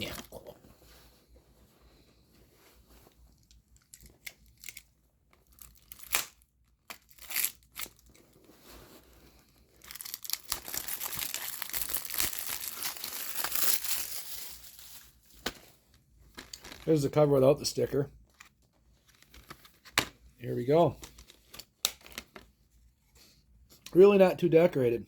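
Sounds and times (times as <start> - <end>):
plastic wrap crinkling and tearing: 3.8 - 17.2.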